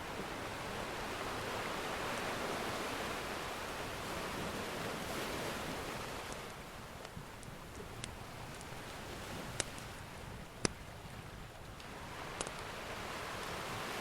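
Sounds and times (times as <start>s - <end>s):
ocean surf washing: 0.0s - 14.0s
wood fire crackling: 6.2s - 10.8s, 11.7s - 12.7s.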